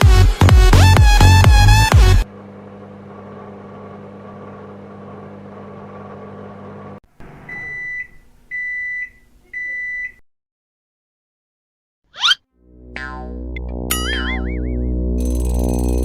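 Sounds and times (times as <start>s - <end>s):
microwave oven humming: 1.8s - 10.2s, 15.1s - 16.0s
high microwave beeps: 7.3s - 10.2s.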